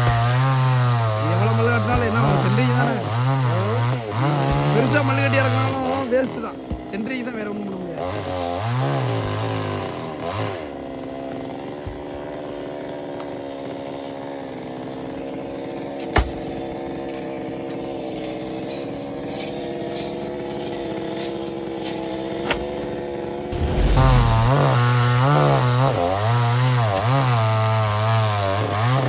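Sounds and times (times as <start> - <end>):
chainsaw engine running: 0.0 - 16.0.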